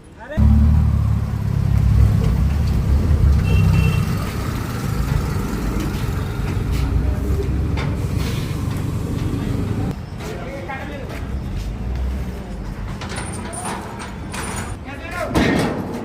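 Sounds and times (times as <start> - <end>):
truck engine rumbling: 0.4 - 10.0.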